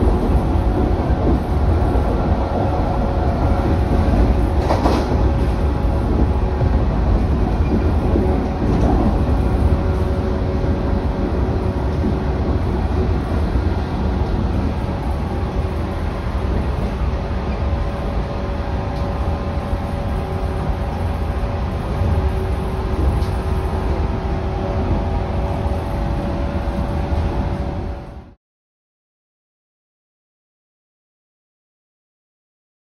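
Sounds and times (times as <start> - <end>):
train wheels rumbling on rail: 0.0 - 28.4.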